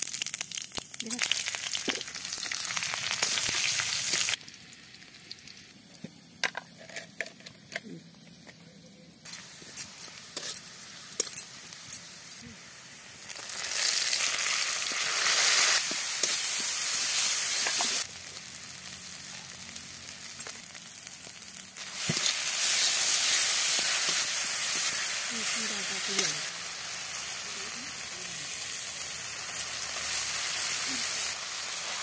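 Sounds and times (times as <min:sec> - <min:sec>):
paste sizzling in hot oil: 0:00.0 - 0:05.8, 0:09.3 - 0:32.0
metal spatula scraping: 0:09.8 - 0:11.5.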